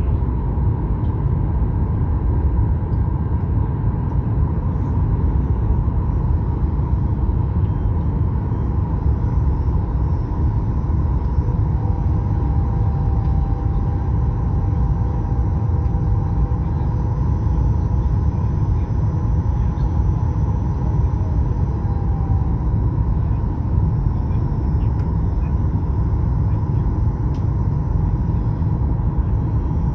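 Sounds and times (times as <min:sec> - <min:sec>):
airliner cabin rumble: 0:00.0 - 0:29.9
faint steady hum: 0:00.0 - 0:29.9
lower hum: 0:00.0 - 0:29.9.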